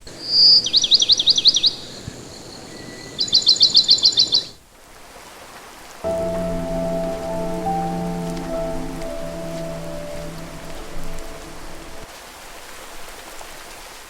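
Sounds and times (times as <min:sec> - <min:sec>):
soft sustained music: 0:06.0 - 0:12.1
steady background hiss: 0:06.0 - 0:12.1.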